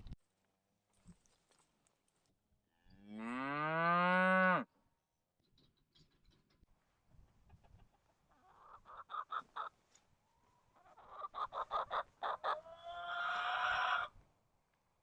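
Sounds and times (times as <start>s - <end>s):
chicken clucking: 7.3s - 10.0s, 10.7s - 14.1s.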